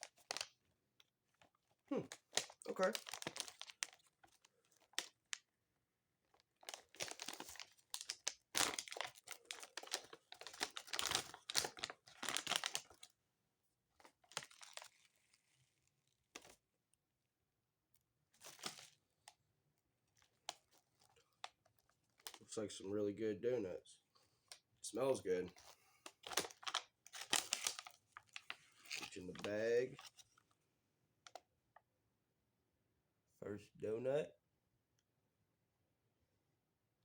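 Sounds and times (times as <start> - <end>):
plastic wrapper crinkling and tearing: 0.0 - 5.5, 6.2 - 13.1, 14.0 - 16.6, 18.4 - 19.0, 20.1 - 22.5, 25.6 - 30.4.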